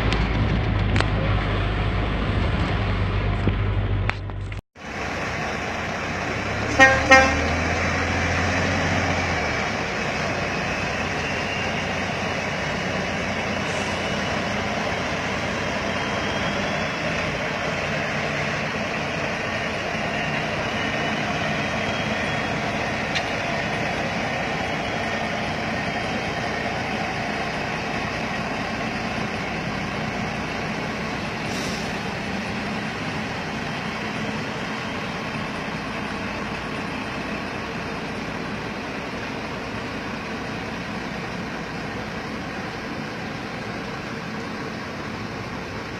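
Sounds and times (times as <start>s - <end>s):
heavy truck engine and tyres: 0.0s - 45.9s
truck horn toot: 6.6s - 7.9s.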